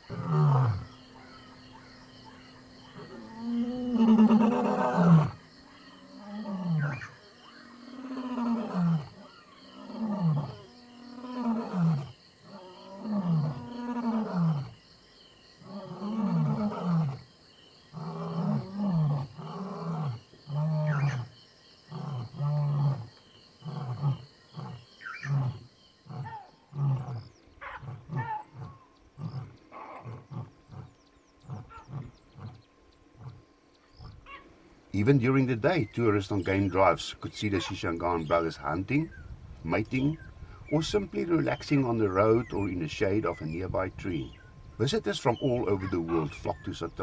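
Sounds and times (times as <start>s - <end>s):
lion grunts: 0.0s - 14.8s, 17.9s - 21.3s, 21.9s - 32.6s, 35.0s - 39.0s, 43.3s - 47.0s
lion roaring: 0.0s - 14.8s, 15.6s - 17.2s, 17.9s - 34.2s.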